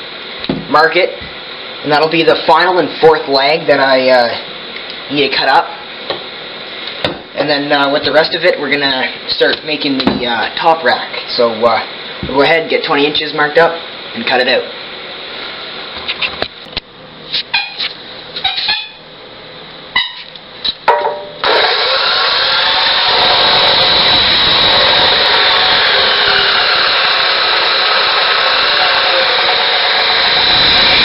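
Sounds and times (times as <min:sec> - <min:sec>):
power cutting tool whining: 0:21.4 - 0:31.0.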